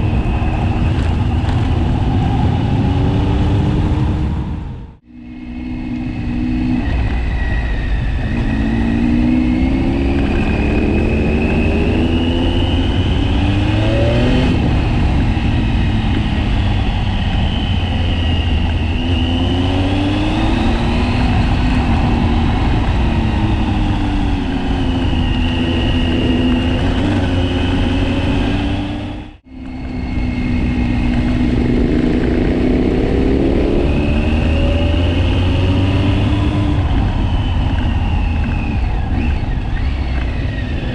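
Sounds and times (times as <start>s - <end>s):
wind buffeting the microphone: 0.0s - 5.1s, 5.9s - 40.9s
motorcycle engine accelerating: 0.0s - 40.9s.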